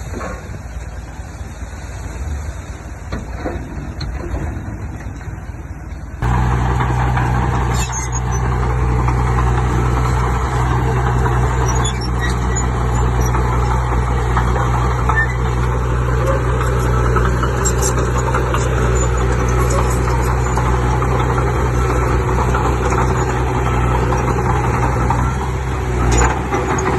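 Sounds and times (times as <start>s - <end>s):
diesel engine droning: 0.0s - 26.9s.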